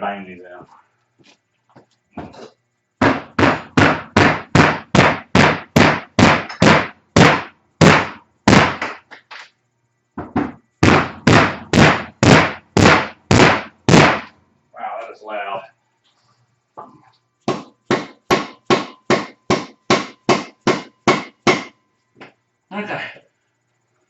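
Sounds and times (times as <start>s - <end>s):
hammer striking metal: 17.5s - 21.8s.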